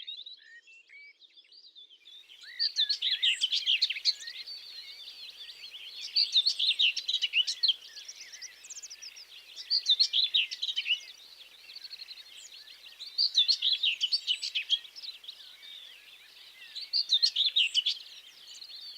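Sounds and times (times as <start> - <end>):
songbirds chirping and singing: 0.1 - 18.9
faint steady hiss: 2.1 - 18.9.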